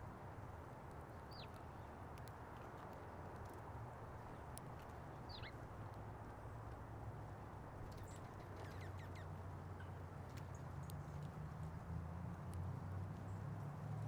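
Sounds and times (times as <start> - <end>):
small birds chirping: 1.2 - 1.9, 4.2 - 5.7, 7.9 - 9.3.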